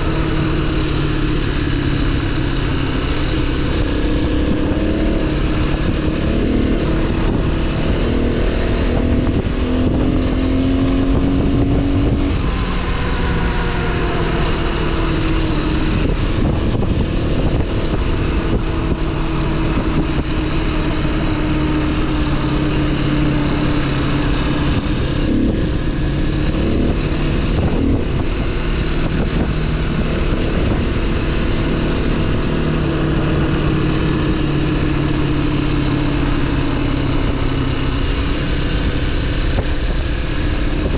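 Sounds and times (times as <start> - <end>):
motorcycle engine running: 0.0 - 40.9
steady rush of noise: 0.0 - 40.9.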